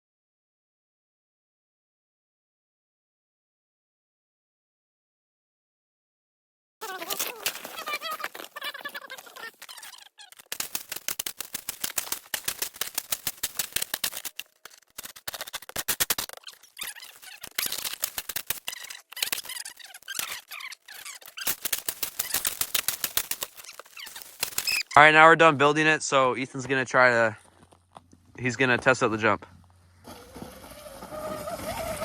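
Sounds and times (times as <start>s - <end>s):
shovels digging in snow: 6.8s - 25.0s.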